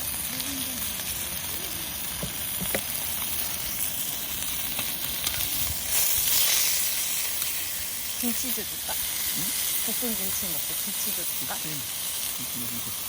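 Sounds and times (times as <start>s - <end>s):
food sizzling on a griddle: 0.0s - 13.0s.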